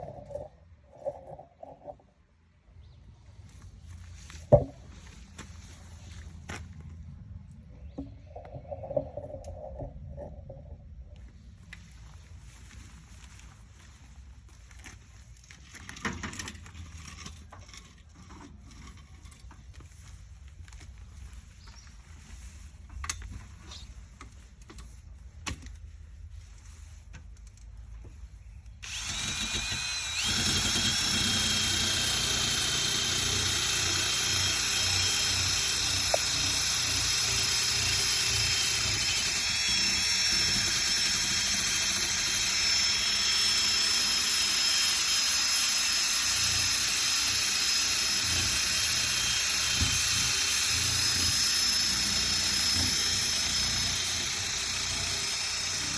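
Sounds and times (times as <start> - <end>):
electric sander whining: 28.8 - 55.9.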